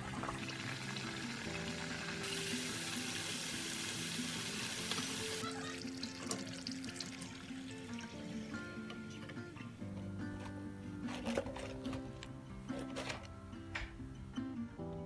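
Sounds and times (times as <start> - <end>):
deep-frying sizzle: 0.0 - 9.3
background music: 0.0 - 15.0.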